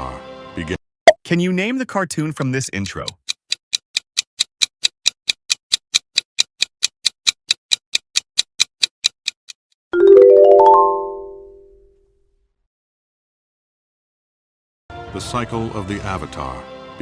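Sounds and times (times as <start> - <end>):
clock-like timer ticks: 2.2 - 9.6
rising run of chime notes: 10.0 - 11.8.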